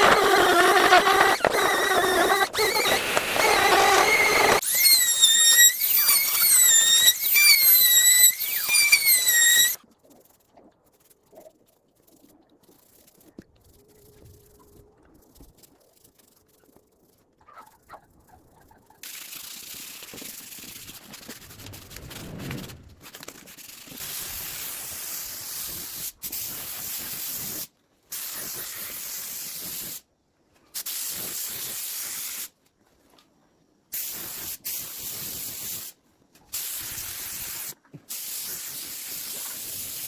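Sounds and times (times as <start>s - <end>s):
faint scratching and rubbing: 5.6s - 24.5s.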